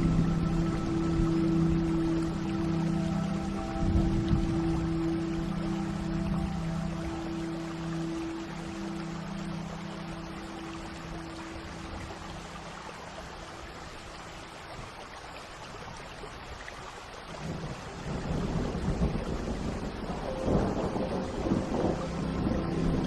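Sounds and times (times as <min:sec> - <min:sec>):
steady rain: 0:00.0 - 0:23.0
thunder rolling: 0:17.5 - 0:23.0.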